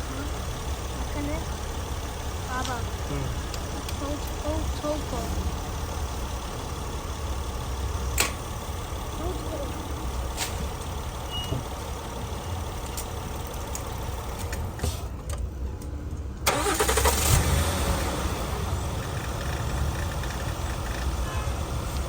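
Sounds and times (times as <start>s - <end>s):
car engine cranking and starting: 0.0s - 22.0s
car engine idling: 0.0s - 22.0s.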